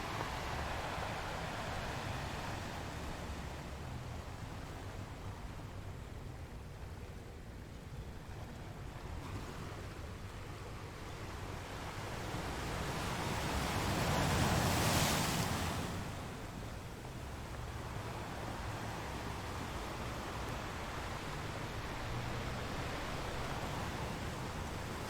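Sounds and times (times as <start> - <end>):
ocean waves breaking: 0.0 - 4.9, 11.4 - 25.0.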